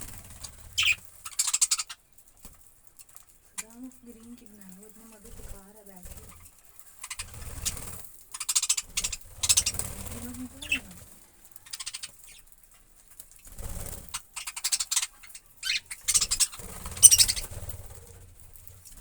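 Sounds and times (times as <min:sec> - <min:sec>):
budgerigars chirping: 0:00.0 - 0:02.0, 0:06.2 - 0:11.0, 0:11.6 - 0:12.5, 0:13.9 - 0:18.7.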